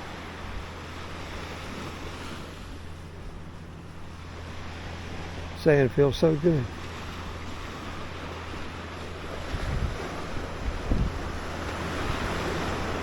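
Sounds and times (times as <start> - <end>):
ocean surf washing onto beach: 0.0 - 13.0
wind buffeting microphone: 6.8 - 13.0.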